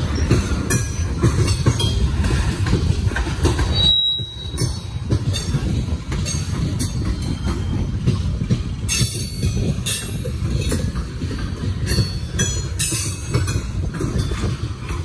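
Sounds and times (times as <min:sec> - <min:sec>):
train clicks and clanks: 0:00.0 - 0:15.0
train wheels rumbling on rail: 0:00.0 - 0:15.0
high wheel squeal: 0:03.7 - 0:05.0.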